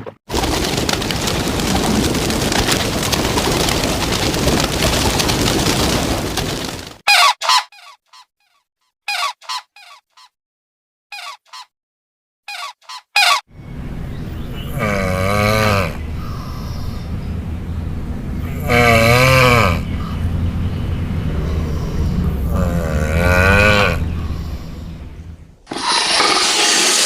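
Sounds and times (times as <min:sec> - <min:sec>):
steady rushing noise: 0:00.3 - 0:07.0
goose honking: 0:07.1 - 0:08.0, 0:09.1 - 0:10.0, 0:12.5 - 0:13.4.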